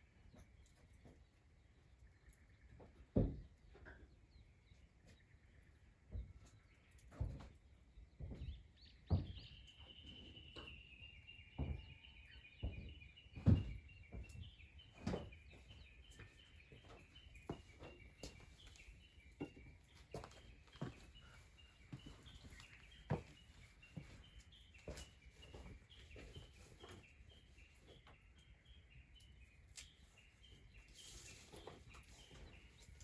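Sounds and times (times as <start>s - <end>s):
bird chirping: 0.0s - 33.0s
dull knocks and thumps: 11.6s - 15.7s.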